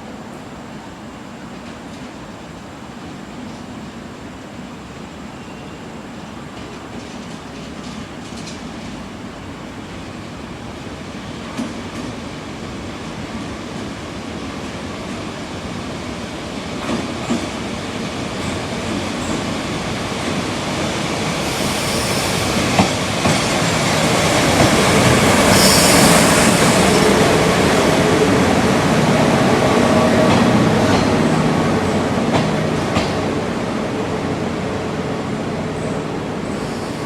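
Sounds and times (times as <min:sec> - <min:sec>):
train rolling past: 0:00.0 - 0:37.0
high wheel squeal: 0:25.4 - 0:27.0.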